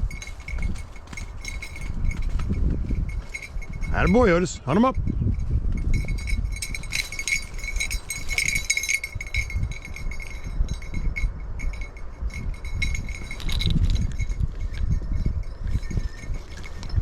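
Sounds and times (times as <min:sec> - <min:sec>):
low rustling: 0:00.0 - 0:04.6, 0:05.4 - 0:10.5
dog bell jingling: 0:00.0 - 0:04.7, 0:05.3 - 0:17.0.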